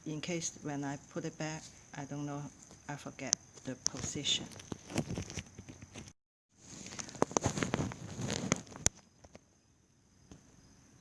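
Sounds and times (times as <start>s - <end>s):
small clicks and rustling: 2.5s - 9.5s.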